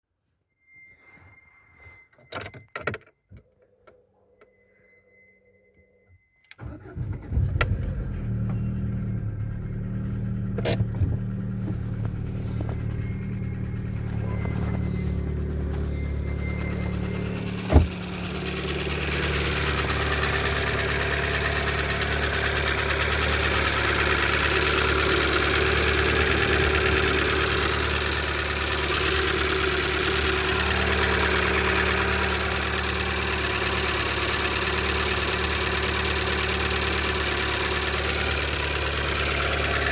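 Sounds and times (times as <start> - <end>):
car engine starting and idling: 6.4 - 39.9
engine knocking: 11.2 - 39.9.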